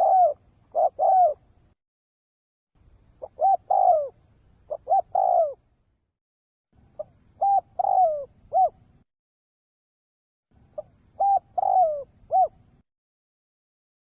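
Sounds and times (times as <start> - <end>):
dove cooing: 0.0 - 1.5, 3.2 - 5.7, 7.0 - 8.8, 10.7 - 12.8.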